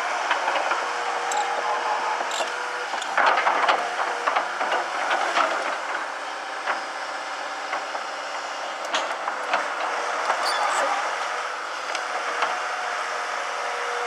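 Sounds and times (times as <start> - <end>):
excavator engine running: 1.2 - 12.2.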